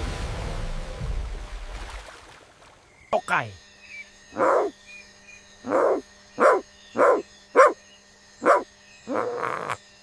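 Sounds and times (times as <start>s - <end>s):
dog barking: 5.7s - 7.8s, 8.4s - 8.7s.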